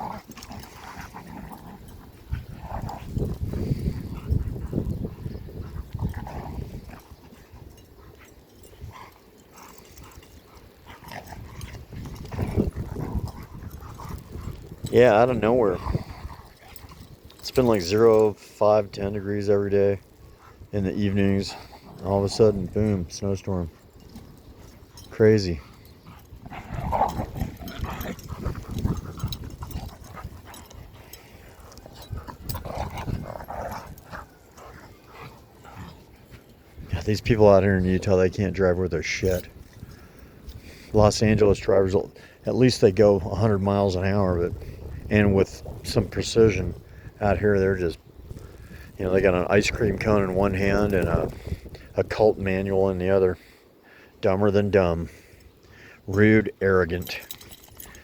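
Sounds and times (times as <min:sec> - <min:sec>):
dogs playing: 0:00.0 - 0:38.2, 0:39.2 - 0:41.0, 0:48.3 - 0:52.0, 0:56.9 - 0:58.0.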